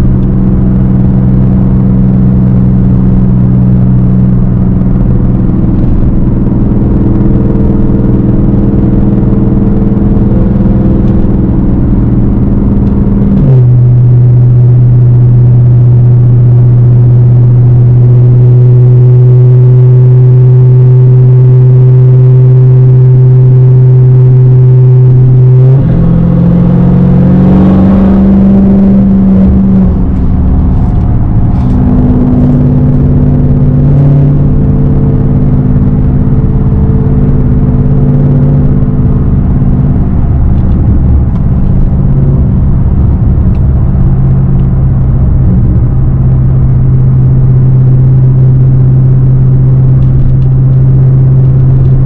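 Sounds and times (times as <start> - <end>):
loud car engine droning: 0.0 - 52.0.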